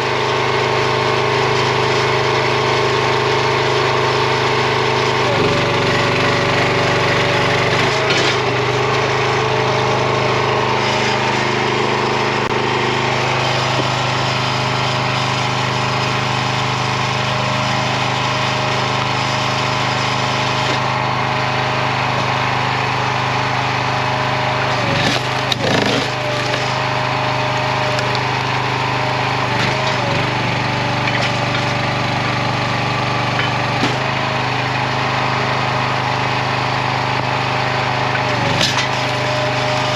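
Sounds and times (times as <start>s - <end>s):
small gas engine running: 0.0s - 39.9s
wood cracking as it splits: 24.9s - 27.0s.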